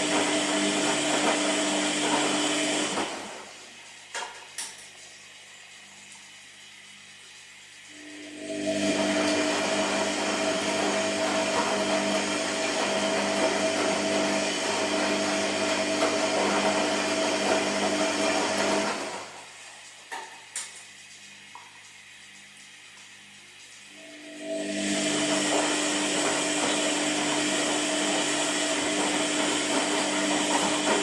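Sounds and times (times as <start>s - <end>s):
washing machine whirring: 0.0s - 31.0s.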